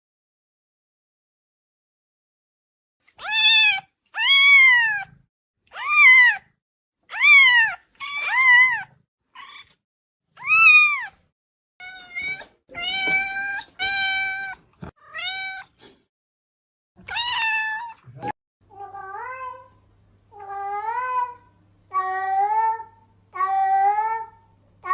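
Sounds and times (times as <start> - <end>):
cat meowing: 3.2 - 6.5, 7.1 - 9.8, 10.4 - 11.2, 11.8 - 15.8, 17.0 - 19.7.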